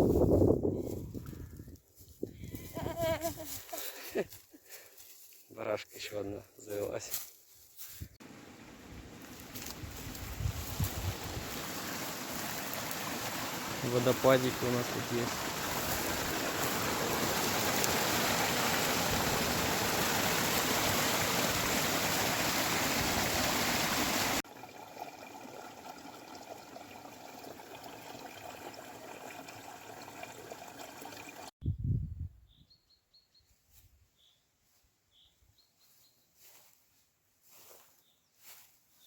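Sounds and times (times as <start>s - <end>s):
quieter rushing water: 8.2s - 31.5s
waterfall rushing: 11.1s - 24.4s
faint bird chirps: 35.1s - 36.4s.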